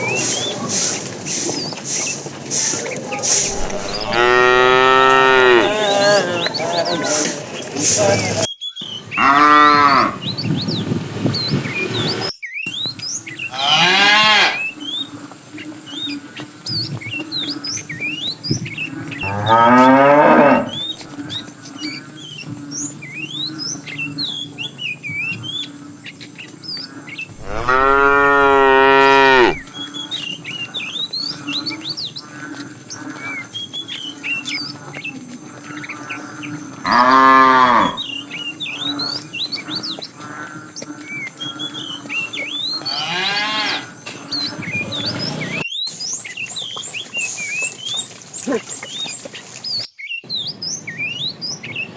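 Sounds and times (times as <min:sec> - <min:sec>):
small birds chirping: 0:00.0 - 0:09.6, 0:10.2 - 0:51.9
cattle mooing: 0:03.4 - 0:07.4, 0:09.2 - 0:10.2, 0:13.5 - 0:14.6, 0:19.2 - 0:20.9, 0:27.4 - 0:29.6, 0:36.8 - 0:38.1, 0:42.9 - 0:43.9.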